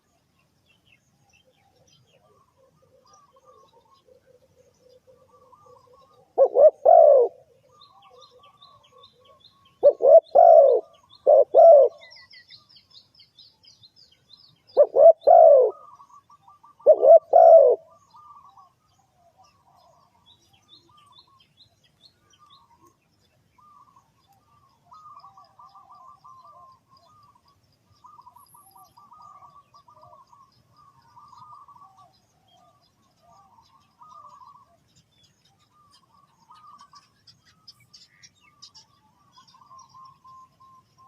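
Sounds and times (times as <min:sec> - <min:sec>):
small birds chirping: 0:00.0 - 0:41.0
dove cooing: 0:01.6 - 0:12.3, 0:14.7 - 0:20.2, 0:23.6 - 0:34.8.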